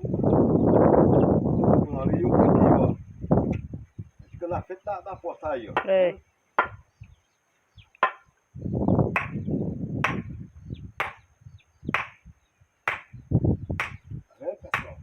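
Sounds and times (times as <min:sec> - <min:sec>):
tool striking wood: 0:06.6 - 0:06.8, 0:08.0 - 0:08.3, 0:09.2 - 0:09.4, 0:10.0 - 0:10.3, 0:11.0 - 0:11.2, 0:11.9 - 0:12.2, 0:12.9 - 0:13.2, 0:13.8 - 0:14.0, 0:14.7 - 0:15.0.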